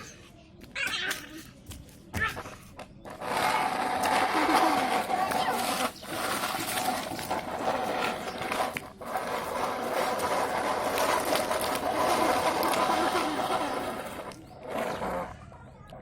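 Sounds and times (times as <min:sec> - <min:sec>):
plastic toys rattling: 0:03.0 - 0:15.5.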